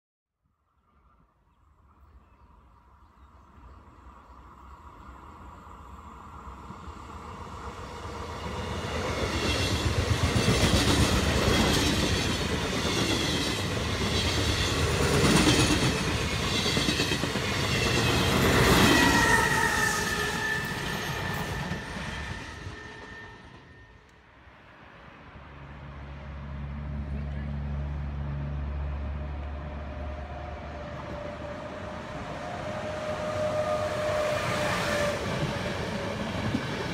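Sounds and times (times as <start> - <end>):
train wheels clattering on rails: 8.2 - 23.8.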